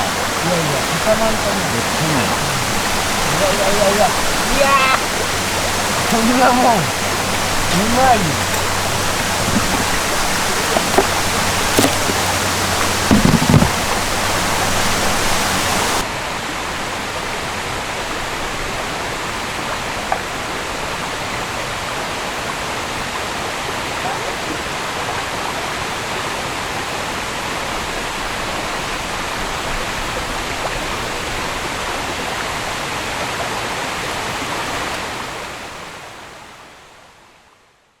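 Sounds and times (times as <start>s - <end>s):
creek running: 0.0s - 26.9s
brief knocks: 8.4s - 14.0s.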